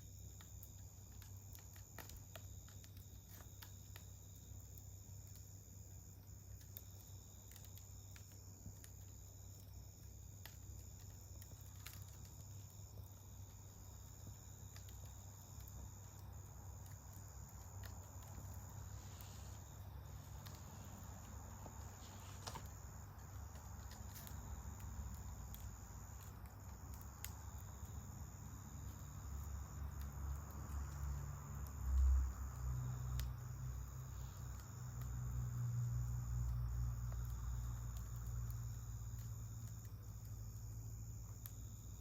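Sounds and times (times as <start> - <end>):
campfire crackling: 0.0 - 42.0
insects chirring: 0.0 - 42.0.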